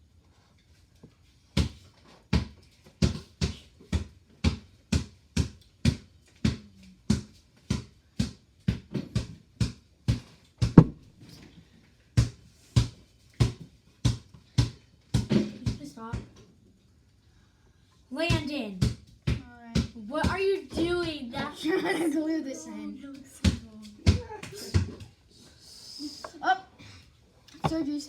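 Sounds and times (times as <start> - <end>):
ball bouncing on hard floor: 1.6 - 11.0, 12.2 - 16.4, 18.8 - 20.4, 27.6 - 27.8.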